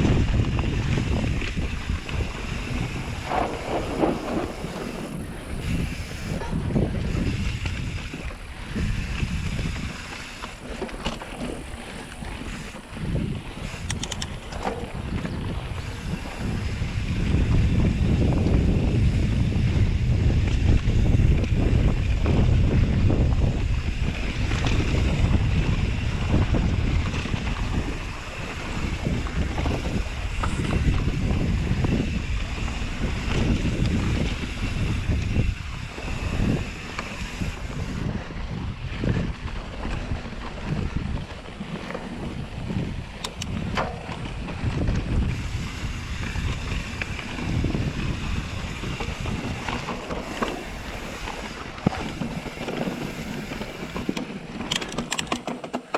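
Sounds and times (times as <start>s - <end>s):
wind buffeting microphone: 0.0s - 55.9s
sharp clicks: 13.8s - 14.7s, 43.2s - 43.9s, 54.1s - 55.9s.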